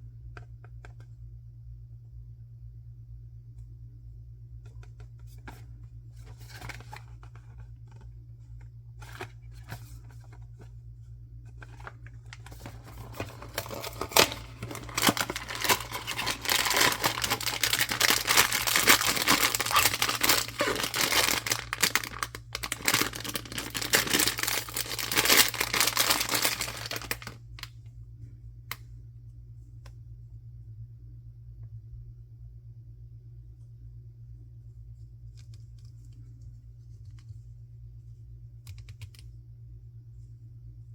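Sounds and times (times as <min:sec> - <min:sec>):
wrapper crinkling and tearing: 0:11.6 - 0:27.7.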